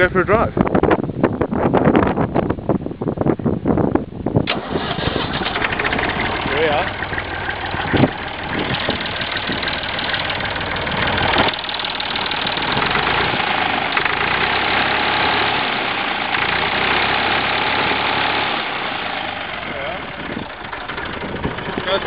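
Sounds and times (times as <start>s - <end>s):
tractor diesel engine clatter: 4.5s - 22.0s.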